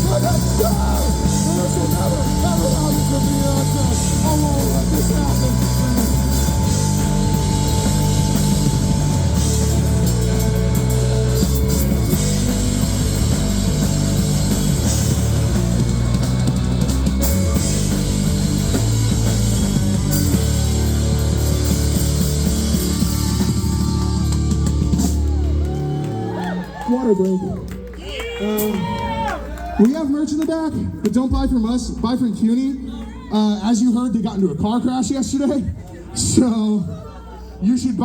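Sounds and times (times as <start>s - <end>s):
bass guitar: 0.0s - 28.0s
electric guitar: 0.0s - 28.0s
drums: 0.0s - 38.0s.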